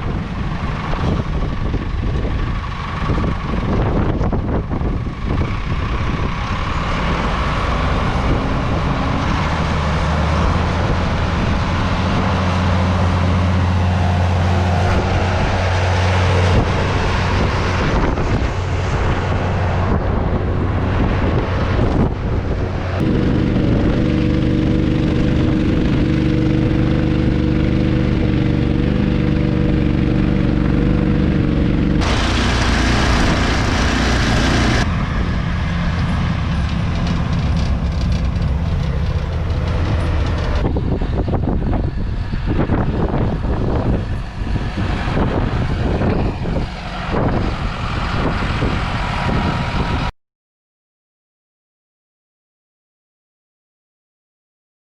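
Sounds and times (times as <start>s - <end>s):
vehicle engine running: 0.0s - 50.1s
wind and road noise: 0.0s - 50.1s.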